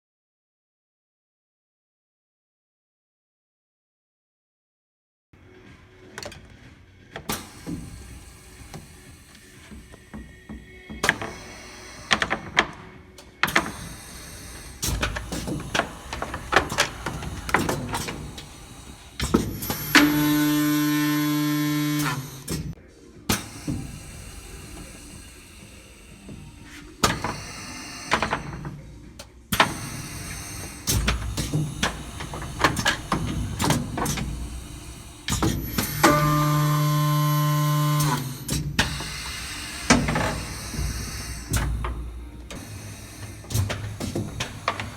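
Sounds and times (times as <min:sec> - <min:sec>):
motor humming: 0:07.1 - 0:44.9
pitched motor whine: 0:15.2 - 0:22.8, 0:30.8 - 0:39.0.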